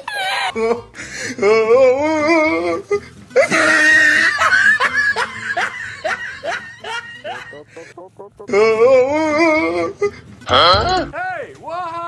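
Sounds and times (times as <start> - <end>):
person laughing: 0.0 - 0.9, 3.4 - 10.7.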